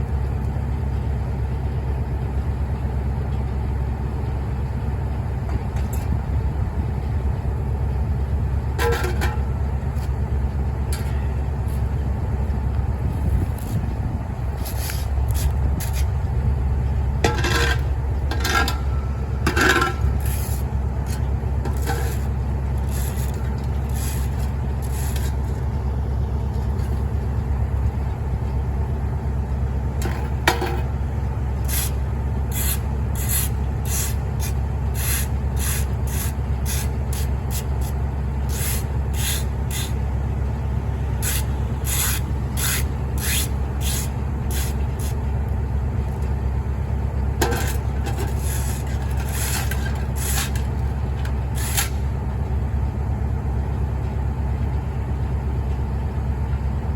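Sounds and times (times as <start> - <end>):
heavy truck engine running: 0.0 - 56.9
scraping strokes: 14.6 - 16.1, 19.5 - 25.6, 31.6 - 37.9, 41.2 - 45.2, 47.4 - 52.0.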